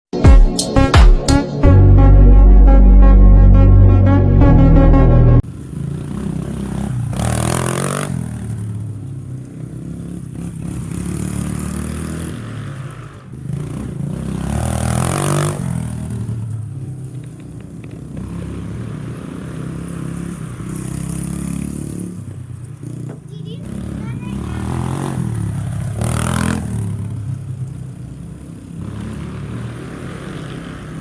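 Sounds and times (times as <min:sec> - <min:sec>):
off-road vehicle engine revving: 0:02.0 - 0:31.0
clatter: 0:16.0 - 0:18.5.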